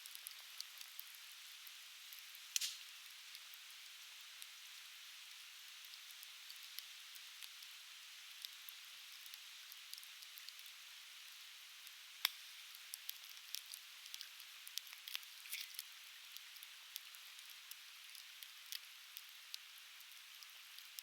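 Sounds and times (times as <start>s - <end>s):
firewood crackling and popping: 0.0s - 3.6s, 11.8s - 21.0s.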